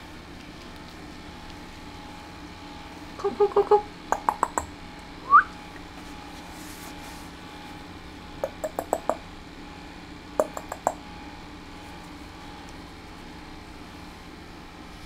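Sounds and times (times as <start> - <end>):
person clicking tongue: 3.4 - 4.7, 8.4 - 9.2, 10.4 - 11.0.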